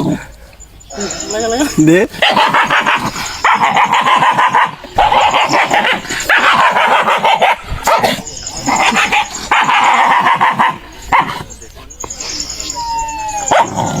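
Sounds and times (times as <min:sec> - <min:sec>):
dog barking and growling: 0:02.2 - 0:11.5, 0:12.8 - 0:14.0.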